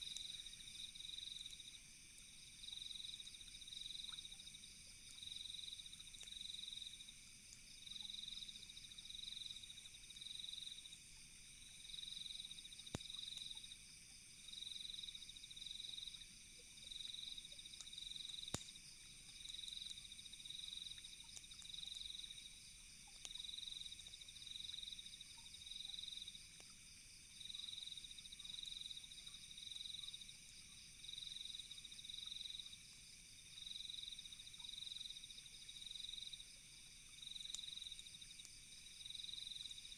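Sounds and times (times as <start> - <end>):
crickets chirping: 0.0 - 39.9
high-pitched insect trill: 2.4 - 39.9
campfire pops: 12.7 - 13.6, 17.6 - 22.2, 23.1 - 23.5.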